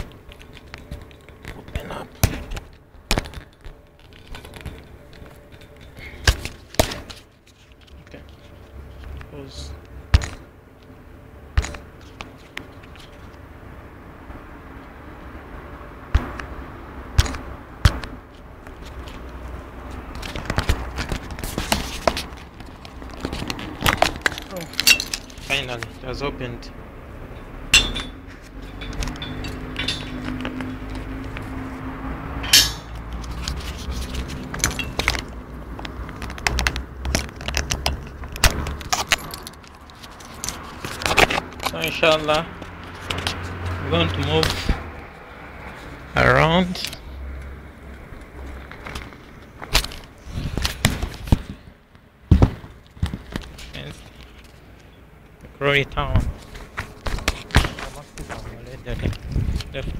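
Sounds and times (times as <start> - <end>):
low background noise: 0.0 - 59.9
bicycle lock chain clinking: 24.0 - 25.5, 27.8 - 30.9, 38.8 - 41.8.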